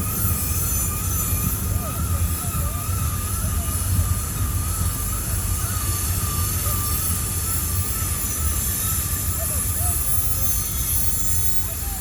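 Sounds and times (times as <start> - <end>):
freight train rumbling: 0.0 - 12.0
wheels squealing on rail: 0.0 - 12.0.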